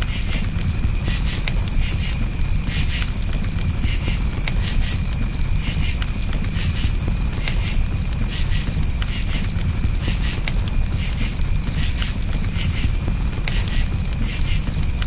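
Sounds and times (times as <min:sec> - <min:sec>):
campfire crackling: 0:00.0 - 0:15.0
crickets chirping: 0:00.0 - 0:15.0.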